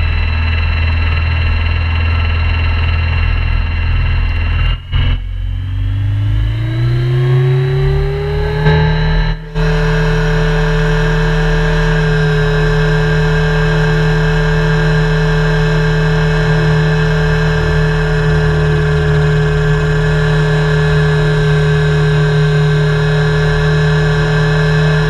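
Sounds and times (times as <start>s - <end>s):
helicopter whine: 0.0s - 25.0s
low even hum: 0.0s - 25.0s.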